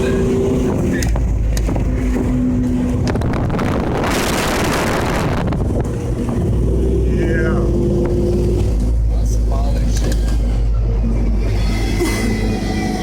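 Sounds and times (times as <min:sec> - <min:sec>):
wind noise on microphone: 0:00.0 - 0:09.0
truck engine running: 0:00.0 - 0:13.0.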